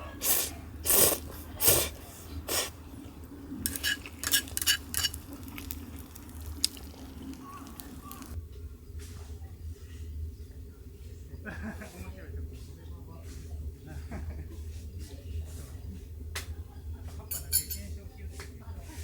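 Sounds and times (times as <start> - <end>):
cookware clinking: 3.6 - 8.4, 17.3 - 17.9
cookware scraping: 3.6 - 8.4, 17.3 - 17.8.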